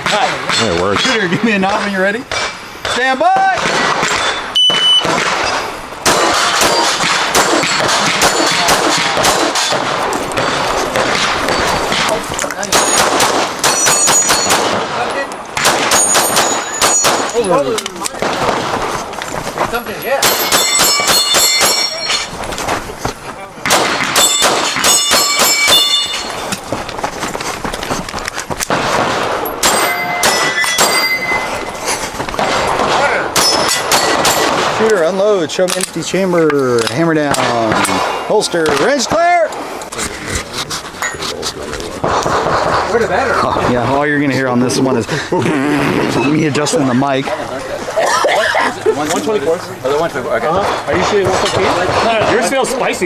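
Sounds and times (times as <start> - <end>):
rapid pistol fire: 3.6 - 15.0, 15.6 - 17.4, 23.6 - 25.9, 42.0 - 43.0, 50.9 - 52.6
steel targets clanging: 3.8 - 18.4, 19.7 - 22.4, 23.8 - 26.7, 29.2 - 38.1
steel plates ringing: 12.7 - 14.8, 15.9 - 17.9, 19.8 - 22.4, 24.2 - 26.6, 29.4 - 31.9, 33.4 - 34.8.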